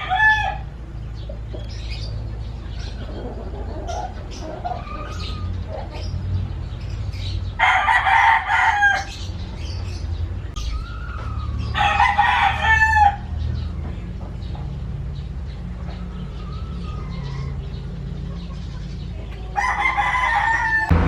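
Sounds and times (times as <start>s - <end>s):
rooster crowing: 0.0s - 0.7s, 7.6s - 9.2s, 10.7s - 13.4s, 19.5s - 21.0s.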